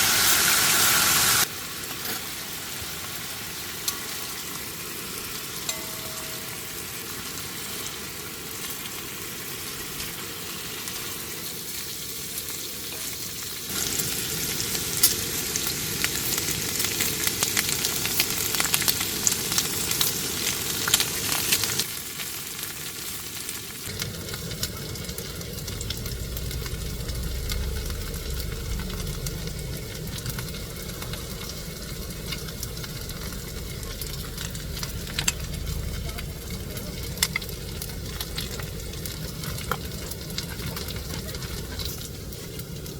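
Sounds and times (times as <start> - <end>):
food sizzling in a pan: 0.0 - 42.9
low rumble: 23.9 - 42.9.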